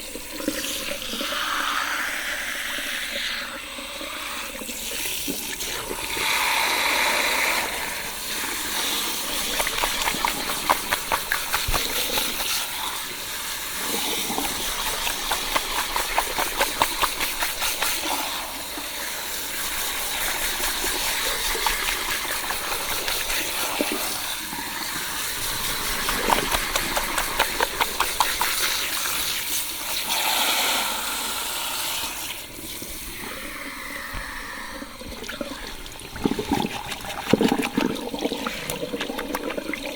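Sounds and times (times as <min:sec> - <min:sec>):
water running onto hair: 0:08.2 - 0:30.0
fingers rubbing wet hair: 0:09.2 - 0:12.9, 0:13.8 - 0:18.3, 0:19.6 - 0:24.2, 0:25.3 - 0:29.4.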